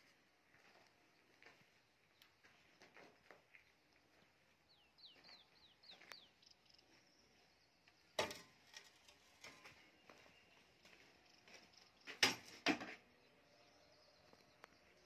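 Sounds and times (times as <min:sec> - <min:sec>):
bird chirping: 0:03.5 - 0:12.2, 0:13.0 - 0:15.0.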